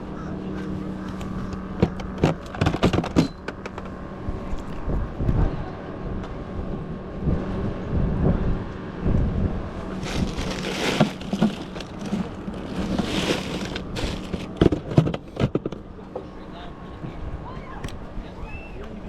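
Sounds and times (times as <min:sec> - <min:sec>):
wind buffeting microphone: 0:04.1 - 0:15.0.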